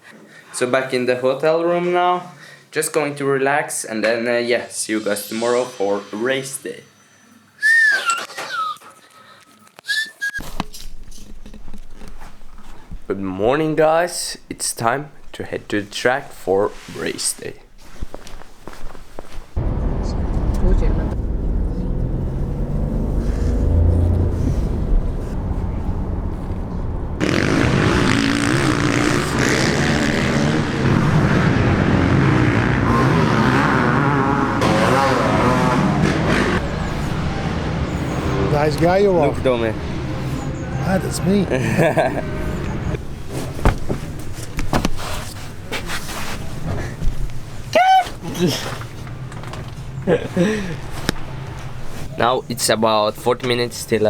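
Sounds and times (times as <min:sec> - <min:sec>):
person whistling: 0:07.6 - 0:08.8, 0:09.8 - 0:10.4
steady low rumble: 0:19.6 - 0:29.7
motocross engines revving: 0:19.6 - 0:43.1
low vehicle rumble: 0:19.6 - 0:44.5.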